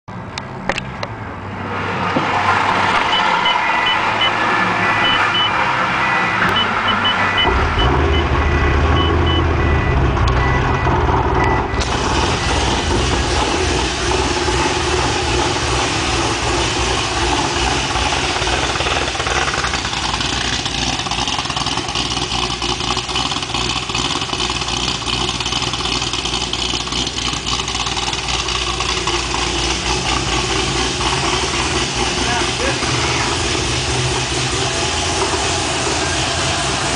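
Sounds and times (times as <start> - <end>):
high electronic beep: 3.0 - 12.8
engine cranking and running: 5.0 - 36.9.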